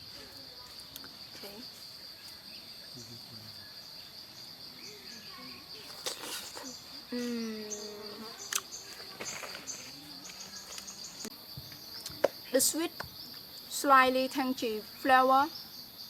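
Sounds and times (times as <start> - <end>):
forest insects droning: 0.0 - 16.0
person humming: 7.1 - 8.3.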